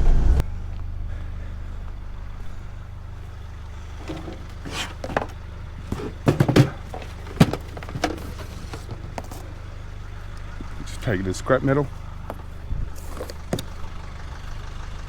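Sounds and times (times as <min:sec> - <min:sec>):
vehicle engine idling: 0:00.8 - 0:15.0
knocks and clatters: 0:04.0 - 0:09.6.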